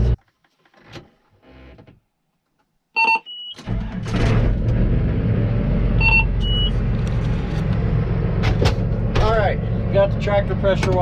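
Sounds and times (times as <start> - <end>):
tractor engine running: 3.6 - 11.0
short electronic beeps: 6.0 - 6.7.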